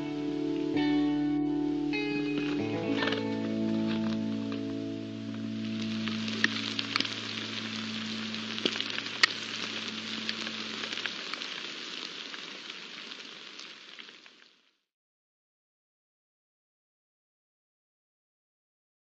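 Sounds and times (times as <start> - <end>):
steady rain hiss: 0.0 - 14.8
sharp rain drop ticks: 2.4 - 14.6.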